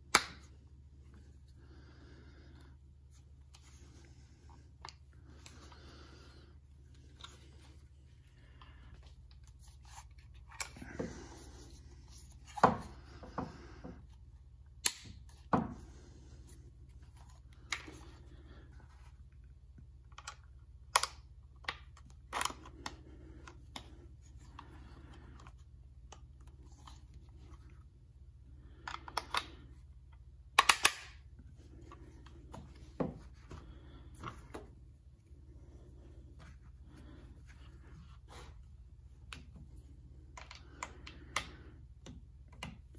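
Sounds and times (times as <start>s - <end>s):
gun parts clicking and knocking: 30.6s - 33.5s.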